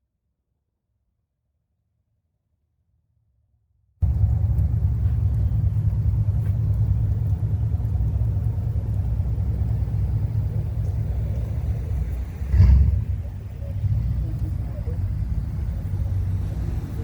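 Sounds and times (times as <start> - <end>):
vehicle engine exhaust rumble: 4.0 - 17.0.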